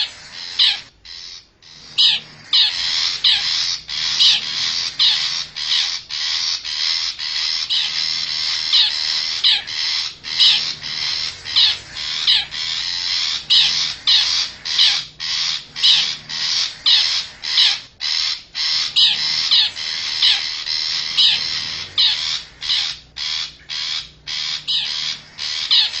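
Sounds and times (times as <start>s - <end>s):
shrike scratchy calls: 0.0s - 26.0s.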